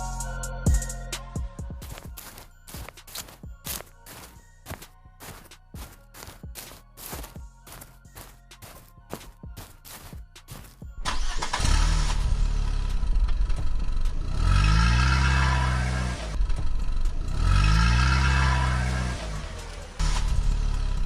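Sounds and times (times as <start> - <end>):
engine starting and revving: 9.6 - 21.0.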